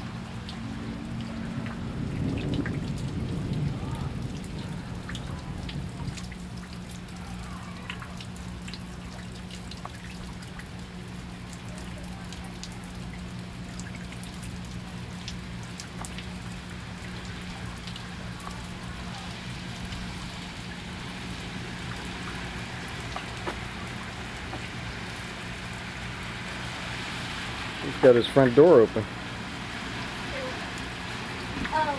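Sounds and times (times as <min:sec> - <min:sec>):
light rain hiss: 0:00.0 - 0:31.9
water drops ticking: 0:07.8 - 0:18.8.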